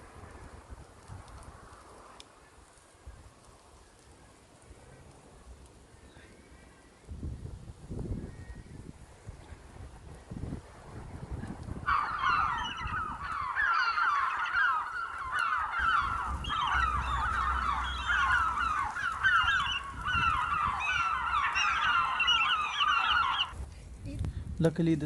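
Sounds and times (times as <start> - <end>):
seagulls squawking: 11.8 - 23.6.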